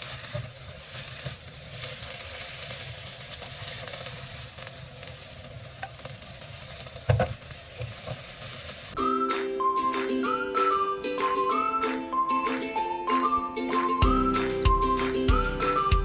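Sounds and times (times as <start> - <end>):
food sizzling in a pan: 0.0 - 9.0
utensil scraping pan: 6.7 - 8.5
utensil knocking pan: 7.0 - 8.3
whistled tune with plucked strings: 9.0 - 16.0.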